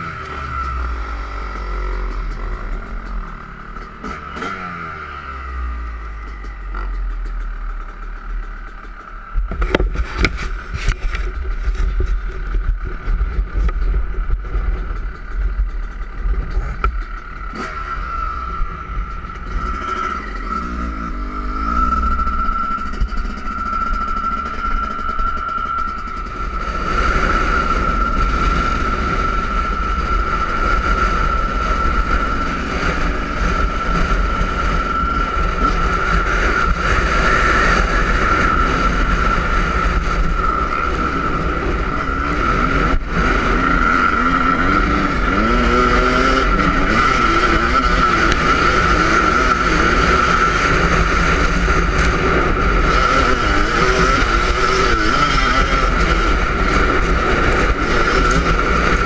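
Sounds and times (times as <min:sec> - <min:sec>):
motocross engine revving: 0:00.0 - 0:11.0, 0:14.6 - 0:59.0
wind rumble on microphone: 0:09.4 - 0:23.8.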